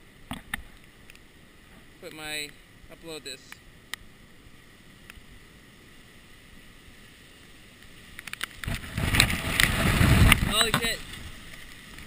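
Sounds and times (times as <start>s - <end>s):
faint steady hiss: 0.0s - 12.0s
muffled wind buffeting camera: 8.6s - 12.0s.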